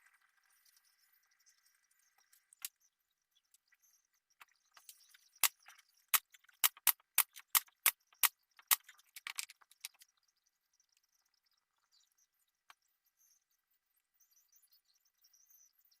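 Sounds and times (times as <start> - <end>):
sharp clicks: 4.8 - 10.0.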